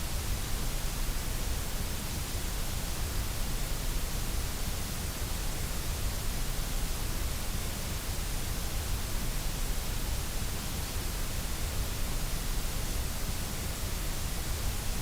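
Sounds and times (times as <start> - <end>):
white noise hiss: 0.0 - 15.0.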